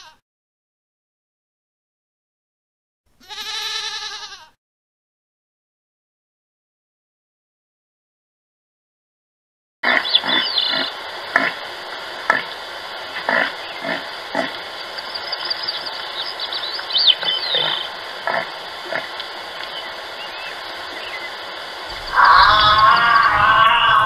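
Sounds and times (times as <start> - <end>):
animal grunts: 9.8 - 16.4, 17.1 - 21.2
birds chirping: 9.8 - 24.0.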